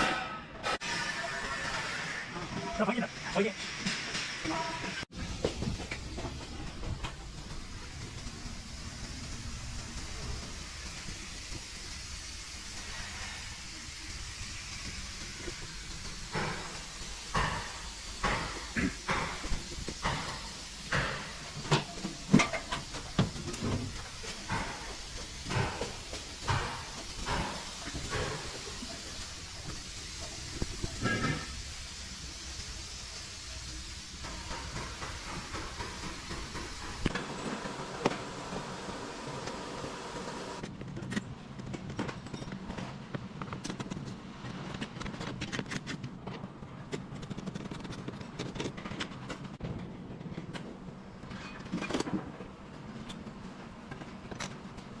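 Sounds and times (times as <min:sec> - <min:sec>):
short bursts of hiss: 0:00.8 - 0:02.6, 0:05.1 - 0:40.6.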